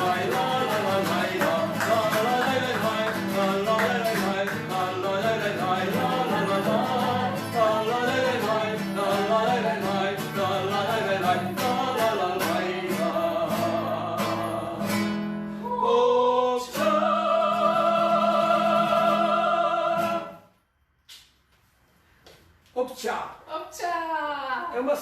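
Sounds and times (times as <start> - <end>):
strummed acoustic guitar: 0.0 - 15.7, 16.6 - 20.4
person singing: 0.0 - 20.3.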